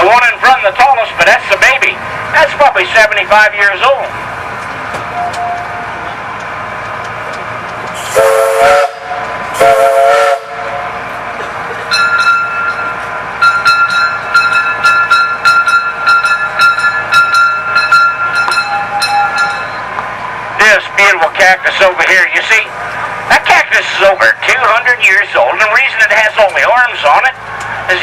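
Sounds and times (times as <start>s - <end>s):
train bell ringing: 5.1s - 5.9s, 11.8s - 20.0s
train whistle blasts: 8.0s - 10.9s.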